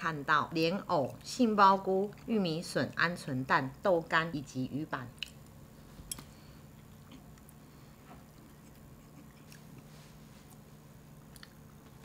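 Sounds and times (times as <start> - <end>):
steady low hum: 0.0 - 12.0
chewing food: 5.1 - 12.0.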